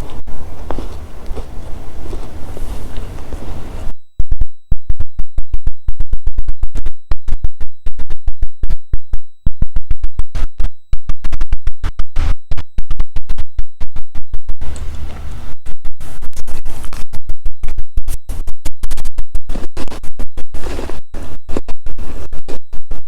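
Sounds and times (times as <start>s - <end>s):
faint high whine: 0.0s - 23.0s
microphone plug crackling and popping: 0.0s - 23.0s.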